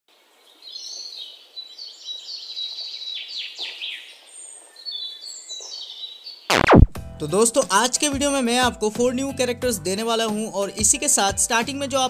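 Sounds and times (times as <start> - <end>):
birds chirping and trilling: 0.4 - 6.5.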